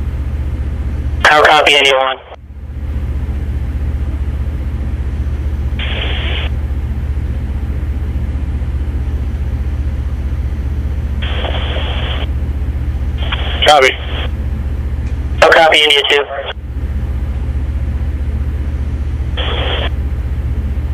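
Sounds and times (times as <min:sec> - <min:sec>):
low engine drone: 0:00.0 - 0:20.9
radio static hiss: 0:01.2 - 0:02.4, 0:05.8 - 0:06.5, 0:11.2 - 0:12.3, 0:13.2 - 0:14.3, 0:15.4 - 0:16.6, 0:19.4 - 0:20.0.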